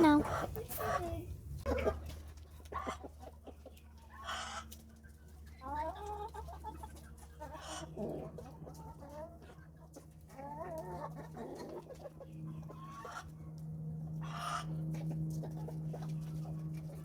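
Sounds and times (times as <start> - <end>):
chickens clucking: 0.0 - 17.0
steady low hum: 0.0 - 17.0.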